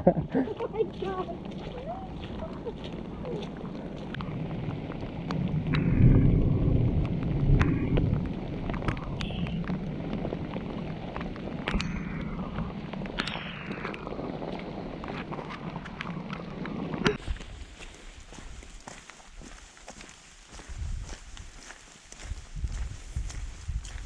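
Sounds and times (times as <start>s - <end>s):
rain tapping: 0.0s - 17.2s
wind buffeting microphone: 0.0s - 19.6s, 20.5s - 24.0s.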